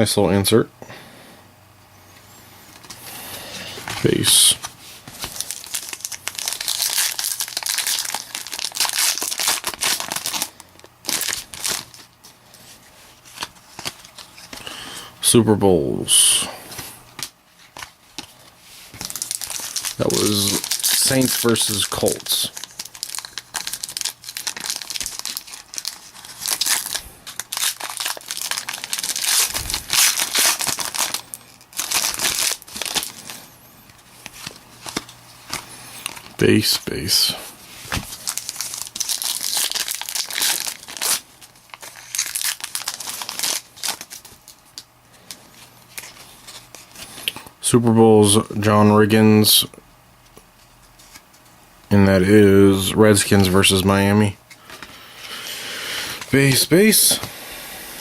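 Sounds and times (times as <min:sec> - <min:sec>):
foil wrapper crinkling: 0:03.7 - 0:15.0, 0:16.7 - 0:47.5.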